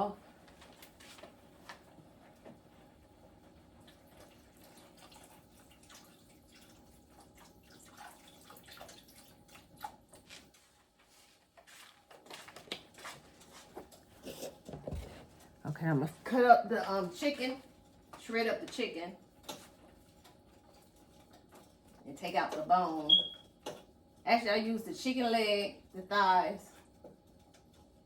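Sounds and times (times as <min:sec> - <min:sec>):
broth trickling into a pot: 0:03.8 - 0:18.4.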